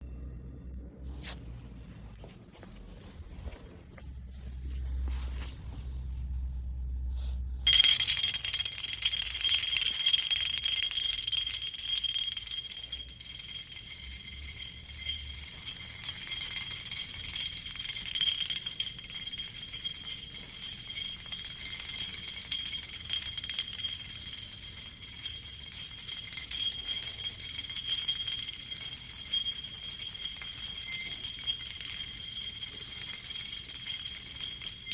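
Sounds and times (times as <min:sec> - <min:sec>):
metal clips clinking and jingling: 0:07.7 - 0:34.9.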